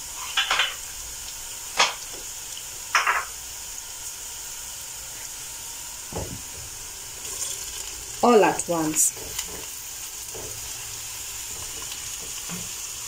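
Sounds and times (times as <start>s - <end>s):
vegetables sizzling in a frying pan: 0.0s - 13.0s
wooden spoon scraping a pan: 6.7s - 12.8s.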